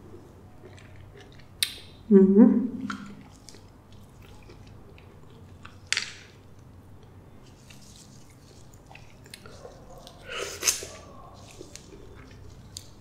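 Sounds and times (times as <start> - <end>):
wet fruit flesh squishing: 7.3 - 13.0.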